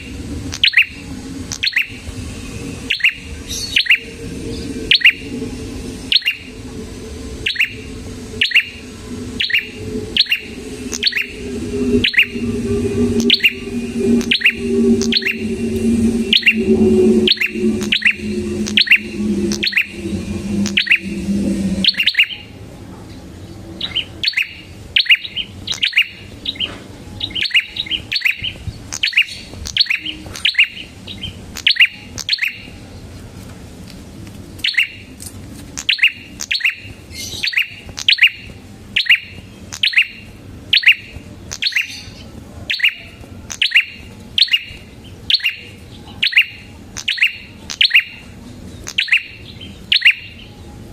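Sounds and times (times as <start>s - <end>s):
low steady hum: 0.0s - 23.8s.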